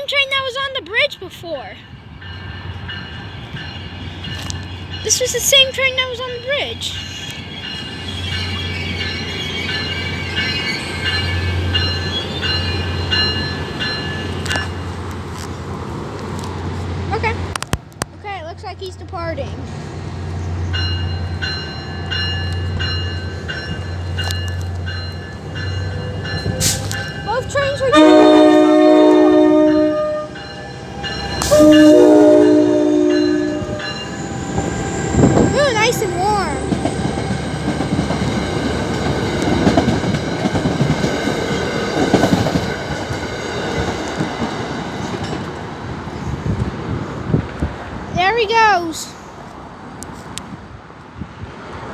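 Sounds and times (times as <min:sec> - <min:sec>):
train locomotive rumbling: 0:00.0 - 0:51.9
bell ringing: 0:02.2 - 0:14.8, 0:20.7 - 0:27.9, 0:29.7 - 0:34.5.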